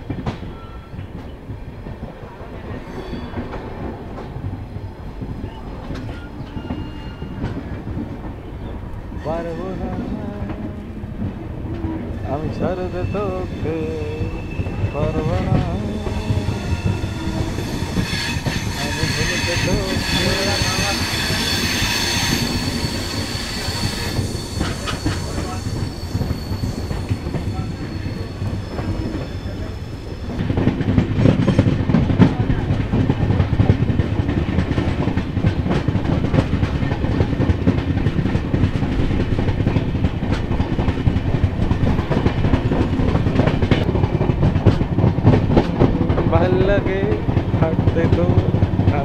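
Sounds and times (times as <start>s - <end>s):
train rumble: 0.0s - 49.0s
train wheel squeal: 0.3s - 1.4s, 2.6s - 3.8s, 5.4s - 7.8s, 11.7s - 30.4s.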